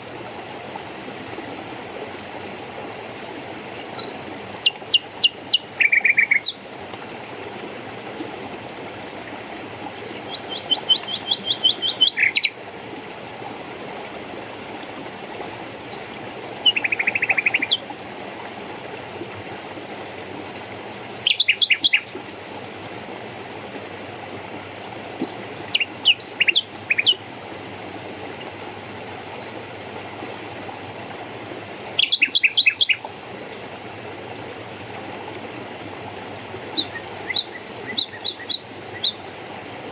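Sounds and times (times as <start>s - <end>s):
flowing stream: 0.0s - 39.9s
songbird singing: 3.8s - 6.6s, 10.1s - 12.6s, 16.6s - 17.8s, 19.5s - 22.2s, 25.2s - 27.3s, 29.3s - 33.1s, 36.7s - 39.3s.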